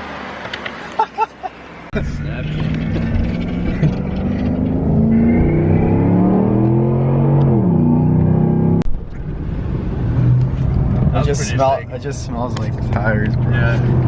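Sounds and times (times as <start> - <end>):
engine rumble: 0.0 - 14.0
pickup engine revving: 2.0 - 8.9.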